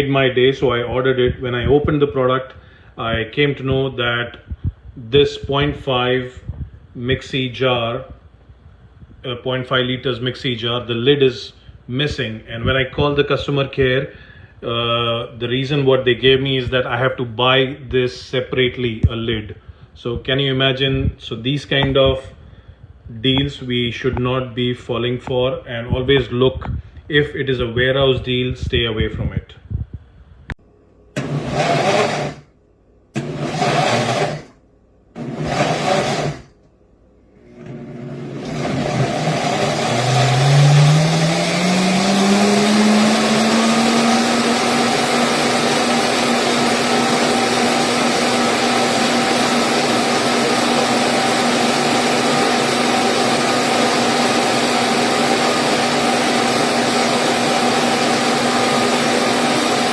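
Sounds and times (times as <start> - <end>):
mixer grinder motor running: 31.2 - 32.5, 33.2 - 34.6, 35.2 - 36.6, 37.4 - 59.9.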